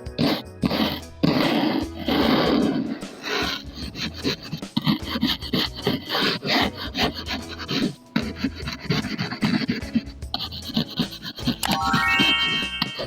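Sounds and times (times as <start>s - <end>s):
rubbing strokes on paper: 2.0s - 11.6s.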